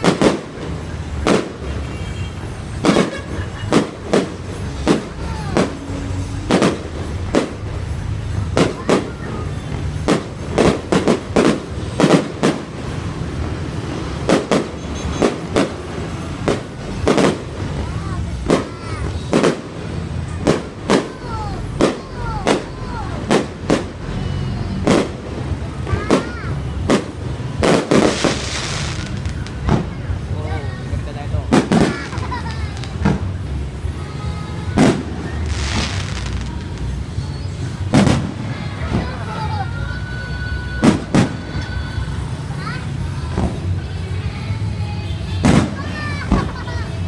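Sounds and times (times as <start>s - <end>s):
fireworks bangs: 0.0s - 43.8s, 45.1s - 46.7s
whistling rockets: 14.2s - 15.8s, 18.5s - 30.0s, 34.7s - 39.2s, 40.4s - 41.8s.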